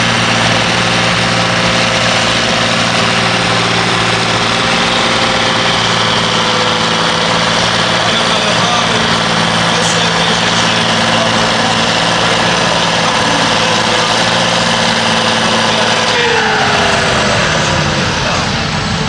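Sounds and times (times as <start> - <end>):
tractor engine at high revs: 0.0 - 19.0
whine falling in pitch: 15.4 - 19.0.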